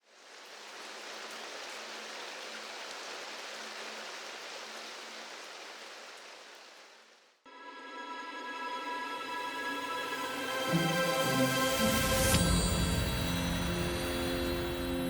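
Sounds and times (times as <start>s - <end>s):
rain pattering: 0.0s - 7.4s.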